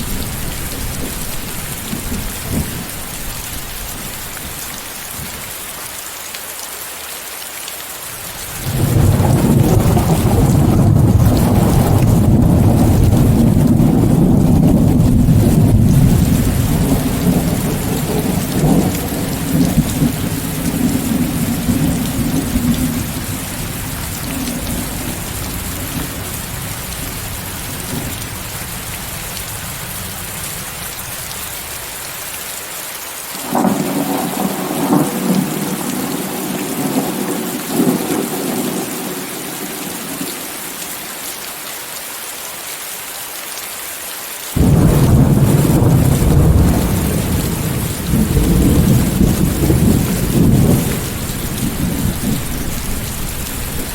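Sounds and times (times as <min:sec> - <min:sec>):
heavy rain hiss: 0:00.0 - 0:53.9
rolling thunder: 0:08.6 - 0:28.3, 0:33.4 - 0:40.0, 0:44.6 - 0:53.9.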